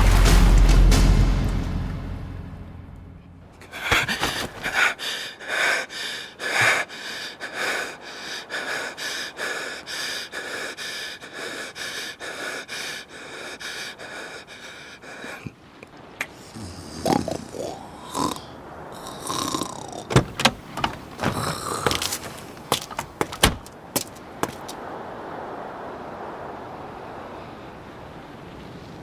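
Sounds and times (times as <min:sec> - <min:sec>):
person breathing heavily: 0:03.6 - 0:15.5, 0:20.1 - 0:23.7.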